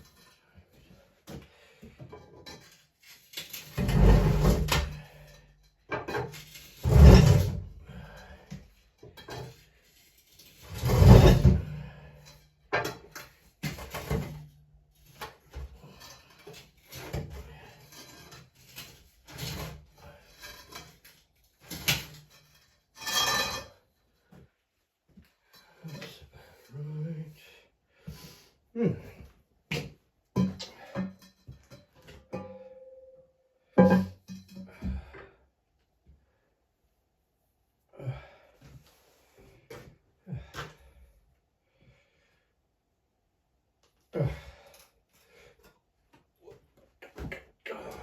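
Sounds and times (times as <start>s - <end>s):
lathe grinding across floor: 10.7s - 11.7s.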